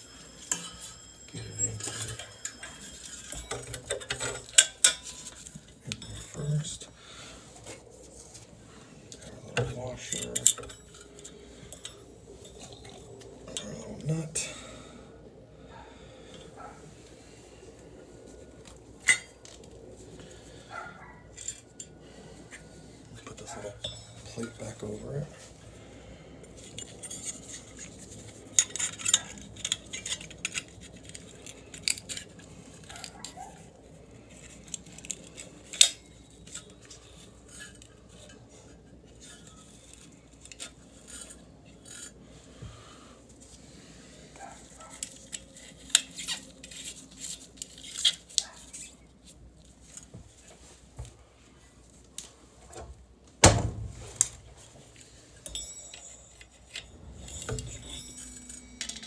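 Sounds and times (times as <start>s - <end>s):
light metallic tool clinks: 55.4s - 59.0s.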